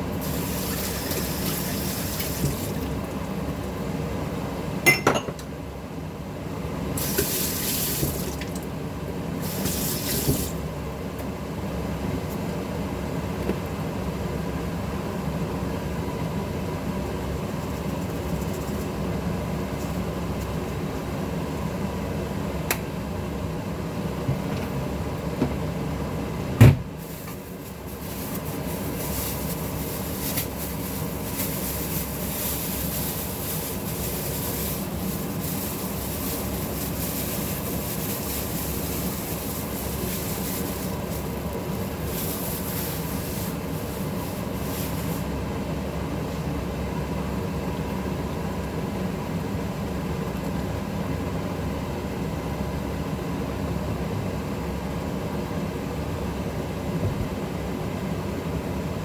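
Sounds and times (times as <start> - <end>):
fan motor hum: 0.0 - 59.0.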